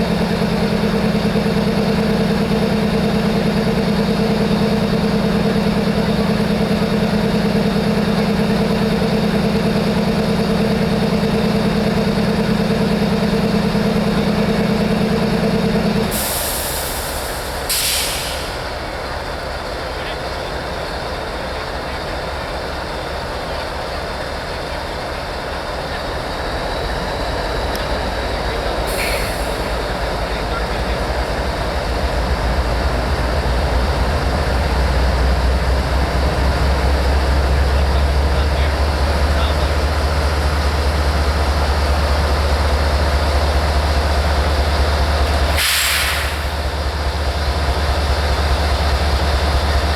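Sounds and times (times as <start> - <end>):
diesel engine hum: 0.0 - 49.9
rail rumble: 0.0 - 49.9
air hisses: 16.1 - 18.8, 45.4 - 46.6.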